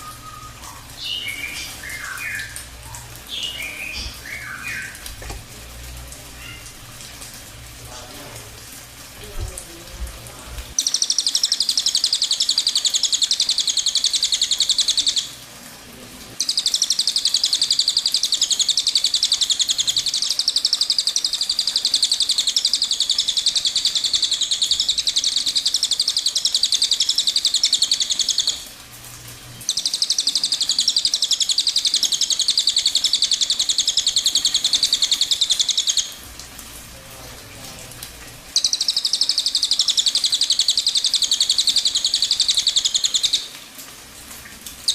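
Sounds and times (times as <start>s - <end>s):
bird singing rapid trills: 0.0s - 2.6s, 3.3s - 5.0s, 10.8s - 15.3s, 16.4s - 28.6s, 29.6s - 36.2s, 38.6s - 43.5s.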